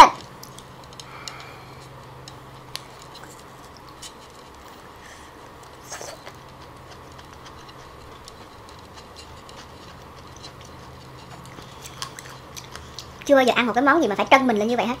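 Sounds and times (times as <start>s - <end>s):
faint low hum: 0.0s - 15.0s
wet mouth clicks chewing: 5.6s - 13.3s.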